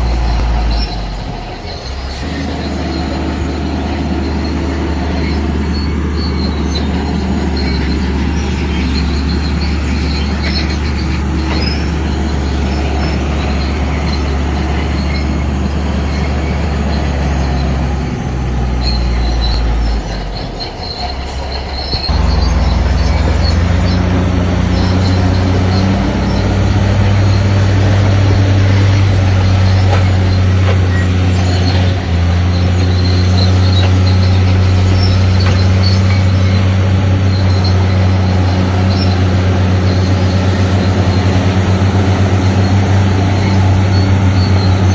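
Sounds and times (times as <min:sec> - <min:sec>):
bulldozer diesel engine: 0:00.0 - 0:44.9
steel tracks squeaking and clattering: 0:00.0 - 0:44.9.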